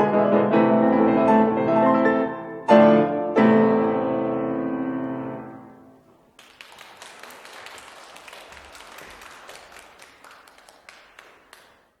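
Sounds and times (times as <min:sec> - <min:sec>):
piano piece: 0:00.0 - 0:06.4
audience applauding: 0:06.3 - 0:12.0.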